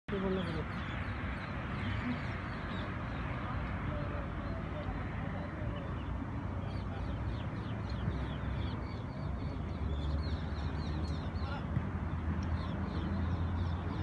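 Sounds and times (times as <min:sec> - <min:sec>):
bird chirping: 0:00.1 - 0:14.0.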